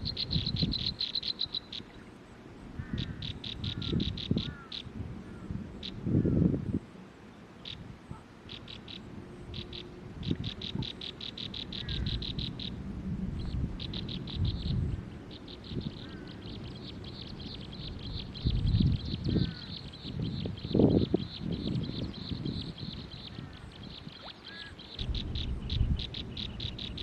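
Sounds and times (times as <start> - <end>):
wind rumble on microphone: 0.0 - 1.0, 2.5 - 7.0, 7.6 - 27.0
small bird chirping: 0.0 - 2.0, 8.5 - 12.8, 13.4 - 27.0.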